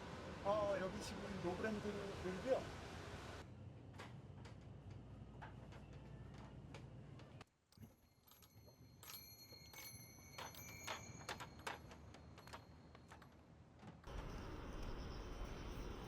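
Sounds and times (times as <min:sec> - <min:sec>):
light metallic jingling: 0:07.8 - 0:13.3.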